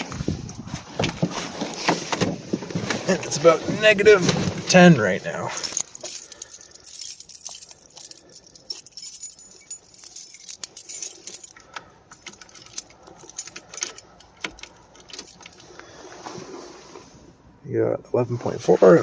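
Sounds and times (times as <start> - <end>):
keys jangling: 5.5 - 15.7.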